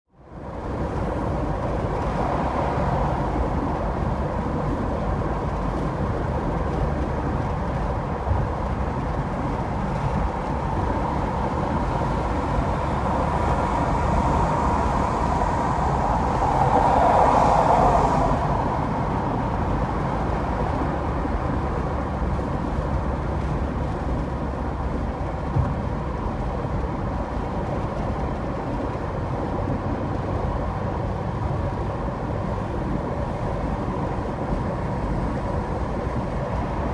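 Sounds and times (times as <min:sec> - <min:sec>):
car road and tyre noise: 0:00.1 - 0:36.9.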